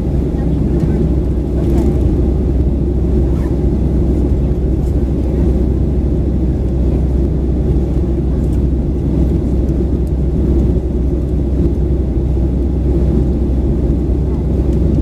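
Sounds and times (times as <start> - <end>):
airplane engines rumbling in cabin: 0.0 - 15.0.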